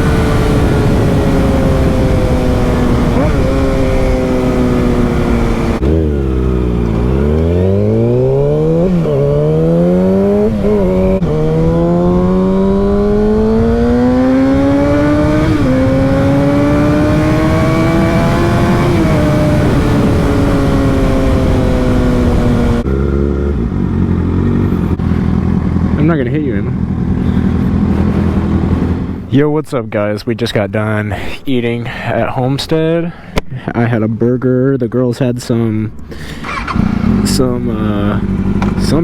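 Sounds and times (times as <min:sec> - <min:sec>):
wind rush: 0:00.0 - 0:05.9, 0:08.3 - 0:22.9
motorcycle engine accelerating: 0:00.0 - 0:29.3, 0:35.9 - 0:39.0.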